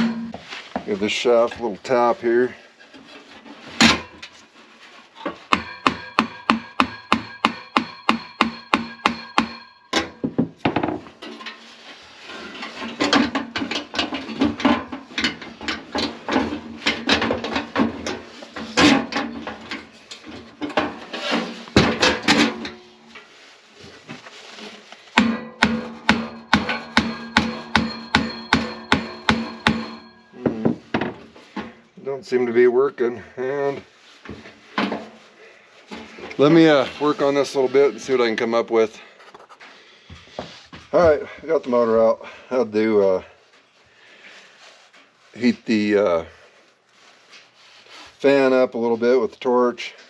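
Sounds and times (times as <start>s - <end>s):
hand tools knocking on metal: 0.0s - 0.9s, 5.3s - 11.1s, 25.2s - 31.2s.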